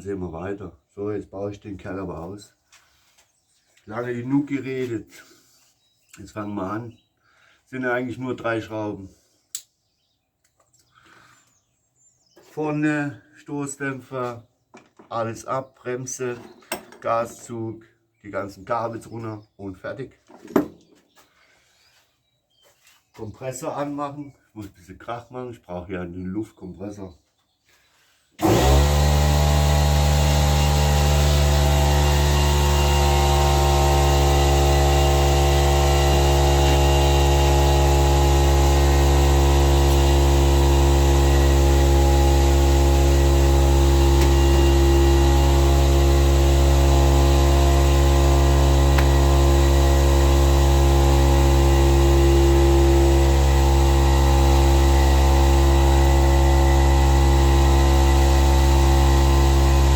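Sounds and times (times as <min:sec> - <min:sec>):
air compressor motor hum: 0:28.4 - 0:59.9.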